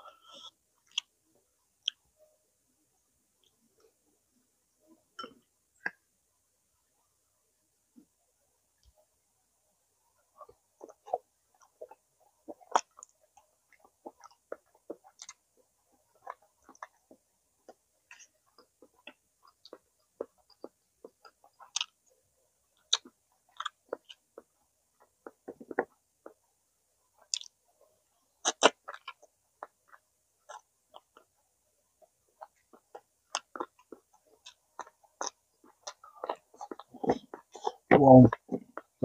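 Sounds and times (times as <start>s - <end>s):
chewing: 10.4s - 22.0s, 22.8s - 26.4s, 28.4s - 31.4s, 32.0s - 39.0s
lip smacks and clicks: 27.3s - 27.6s.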